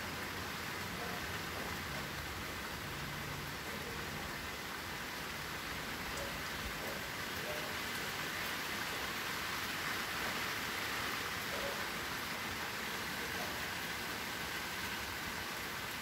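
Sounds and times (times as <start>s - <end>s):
rain on leaves: 0.0s - 16.0s.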